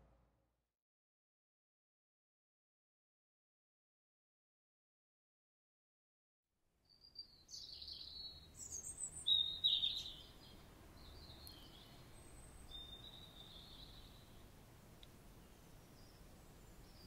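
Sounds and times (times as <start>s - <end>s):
outdoor background noise: 6.7s - 17.0s
birds chirping: 7.5s - 14.5s.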